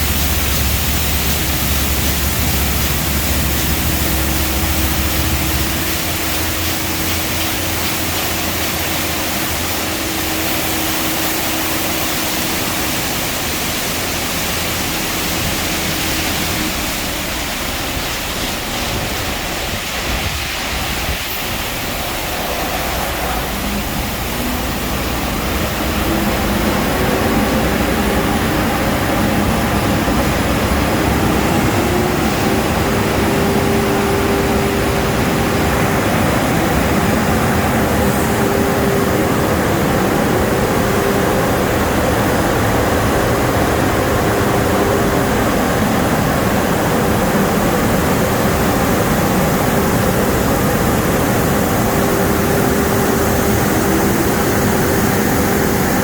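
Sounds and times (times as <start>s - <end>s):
car wash dryer blowers: 0.0s - 56.0s.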